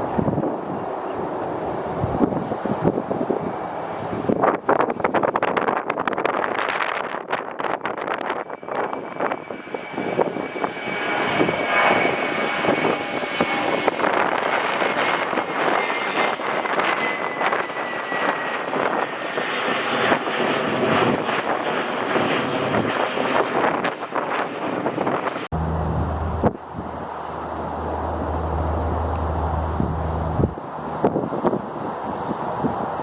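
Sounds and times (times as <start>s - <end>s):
wind buffeting microphone: 0.0s - 15.6s, 24.8s - 33.0s
airliner engines passing: 0.0s - 33.0s.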